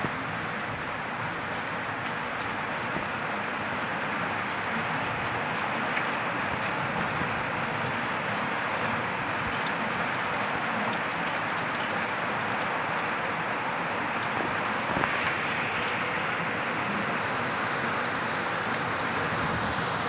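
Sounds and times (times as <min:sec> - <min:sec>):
steady rain falling: 0:00.1 - 0:20.0
raindrops ticking: 0:15.0 - 0:20.0.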